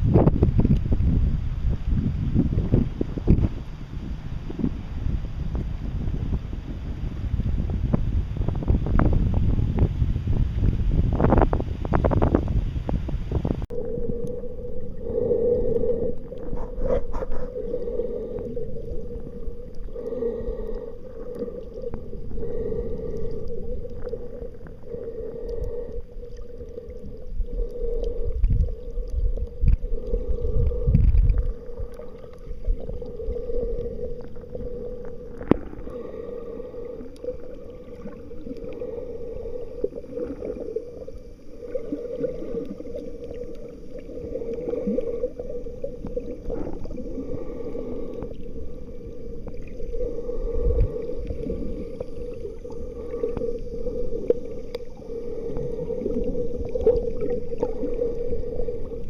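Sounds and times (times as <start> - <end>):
wind buffeting microphone: 0.0 - 13.7, 28.3 - 32.0
steady pulsing hum: 0.0 - 59.0.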